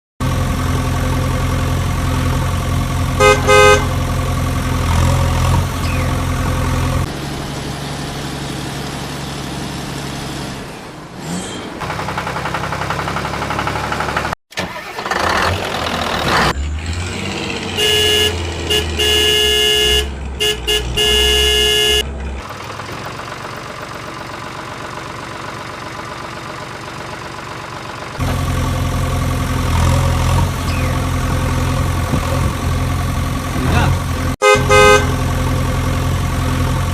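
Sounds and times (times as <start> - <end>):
vehicle engines running: 0.2 - 36.9
car horn honking: 3.2 - 4.1, 17.6 - 22.1, 34.4 - 35.3.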